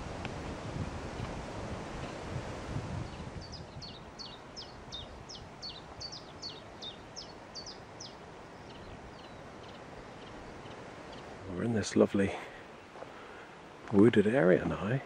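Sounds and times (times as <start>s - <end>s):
light wind noise: 0.0s - 15.0s
songbird singing high notes: 3.0s - 11.3s.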